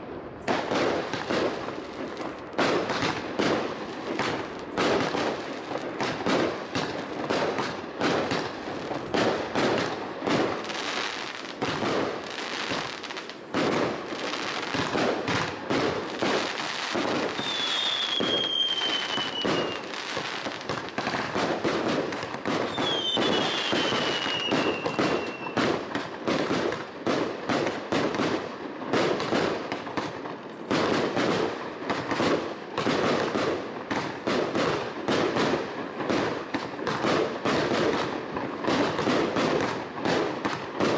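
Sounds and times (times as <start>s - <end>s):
fireworks bangs and crackling: 0.0s - 40.9s
firework whistles gliding down: 16.7s - 20.4s, 22.5s - 25.7s.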